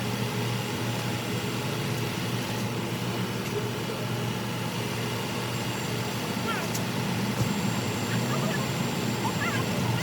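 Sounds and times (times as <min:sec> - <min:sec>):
car interior hum: 0:08.1 - 0:08.6.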